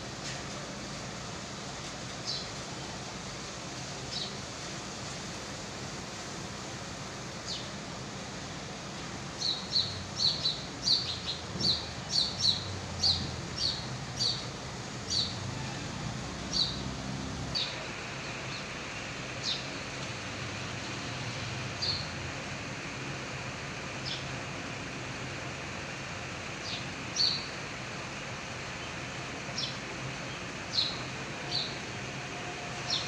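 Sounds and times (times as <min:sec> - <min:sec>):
bird chirping: 0:16.4 - 0:17.8.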